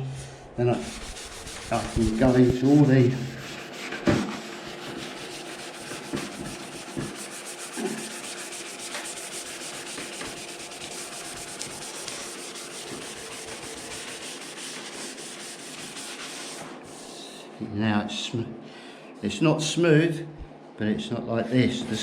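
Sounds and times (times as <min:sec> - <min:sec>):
sponge scuffing painted panel: 0:00.8 - 0:17.2.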